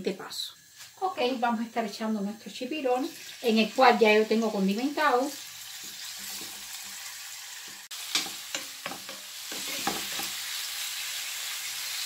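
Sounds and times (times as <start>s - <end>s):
squid sizzling in hot oil: 0.0s - 12.0s.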